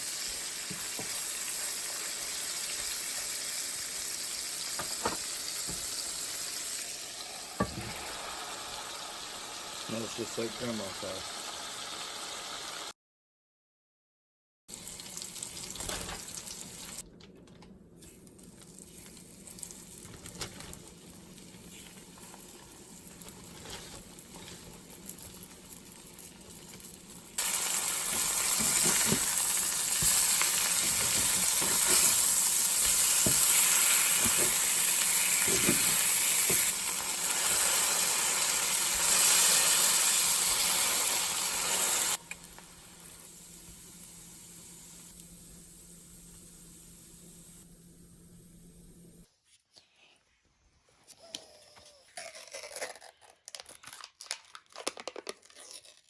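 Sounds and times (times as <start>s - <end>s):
food sizzling in a pan: 0.0s - 12.9s, 20.8s - 47.7s.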